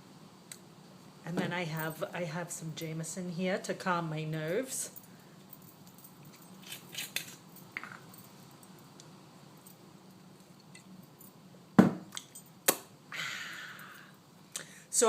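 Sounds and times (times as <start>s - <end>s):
glass and bottle clinking: 6.3s - 8.3s.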